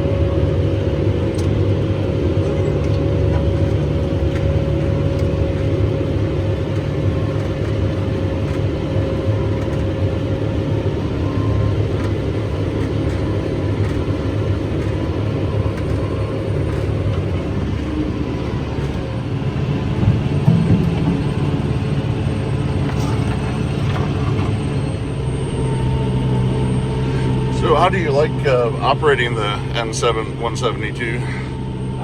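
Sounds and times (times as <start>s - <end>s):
forage harvester running: 0.0s - 32.0s
tractor diesel engine: 0.0s - 32.0s.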